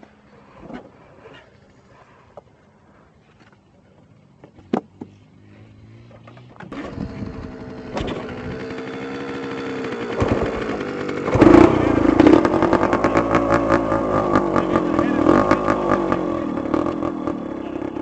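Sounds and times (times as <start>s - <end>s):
dirt bike engine running: 5.1s - 18.0s.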